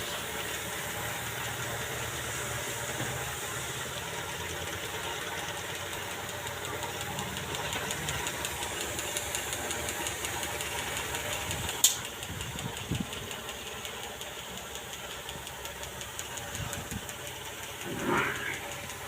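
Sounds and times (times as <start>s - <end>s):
pump running with rapid pulse: 0.0s - 19.0s
sharp click: 11.8s - 12.1s.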